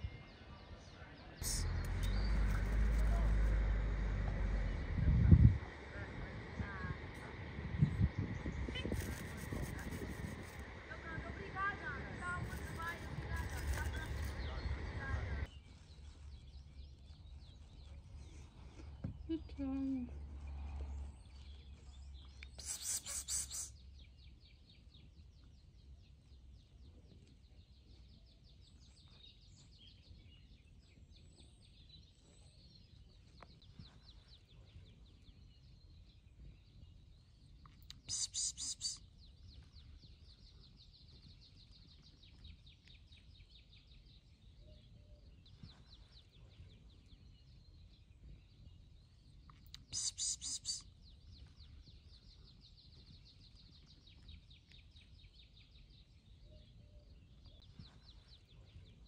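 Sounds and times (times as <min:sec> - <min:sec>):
loud high bird chirping call: 0:22.5 - 0:24.0, 0:37.9 - 0:39.6, 0:49.7 - 0:51.5.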